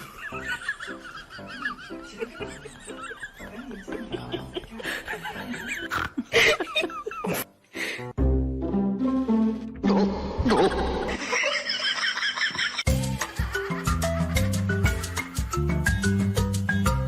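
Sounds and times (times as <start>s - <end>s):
people laughing: 0.0s - 7.4s, 9.9s - 15.6s.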